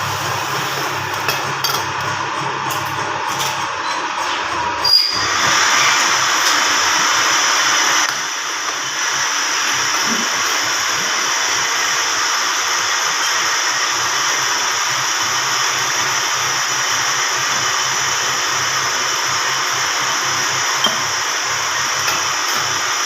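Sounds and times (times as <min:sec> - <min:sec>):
grinding machine whirring: 0:00.0 - 0:23.0.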